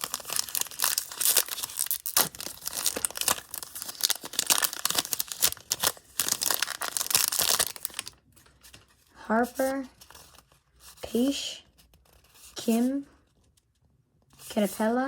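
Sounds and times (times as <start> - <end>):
plastic wrapper tearing and crinkling: 0.0 - 8.8.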